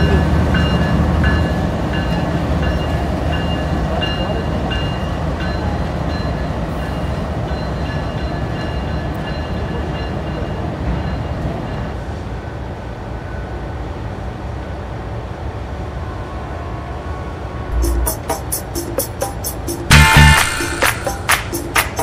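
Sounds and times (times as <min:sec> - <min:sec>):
locomotive engine rumbling: 0:17.7 - 0:22.0.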